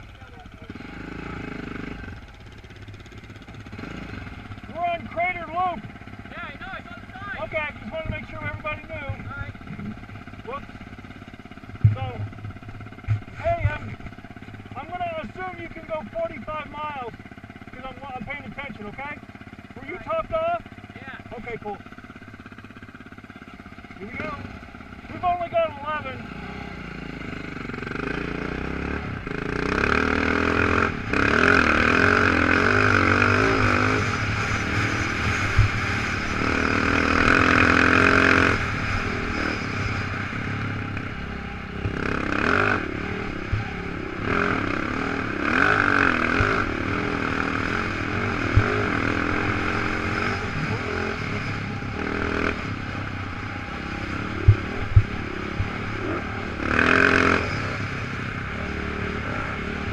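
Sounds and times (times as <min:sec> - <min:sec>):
motorcycle engine revving: 0:00.0 - 0:59.9
knocks and clatter over rough ground: 0:07.7 - 0:10.3, 0:11.3 - 0:14.4, 0:54.4 - 0:55.9.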